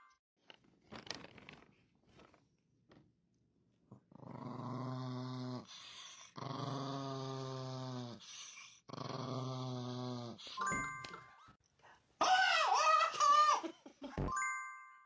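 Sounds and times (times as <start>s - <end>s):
dog growling: 4.1s - 10.6s.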